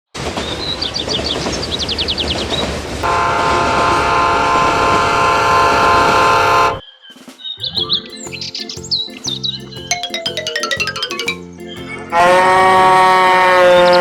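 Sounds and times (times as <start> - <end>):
train rumbling: 0.2 - 6.8, 12.1 - 14.0
train horn: 3.0 - 6.8, 12.2 - 14.0
high rapid chirps: 7.6 - 14.0.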